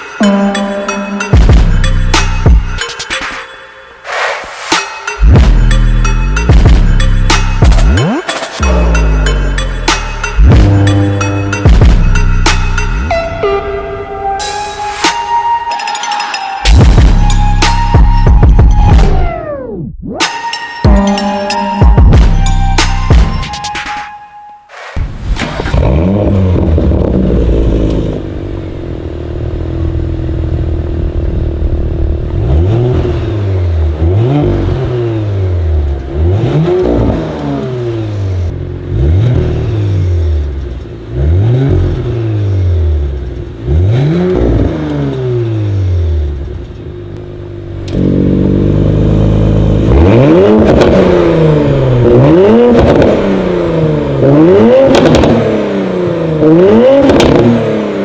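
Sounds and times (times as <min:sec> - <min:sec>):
car engine revving in blips: 0:05.1 - 0:15.4, 0:24.7 - 0:58.0.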